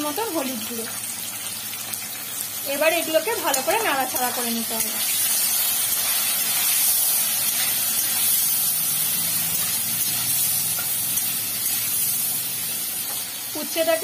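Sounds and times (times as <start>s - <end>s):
vegetables sizzling in hot oil: 0.0s - 14.0s.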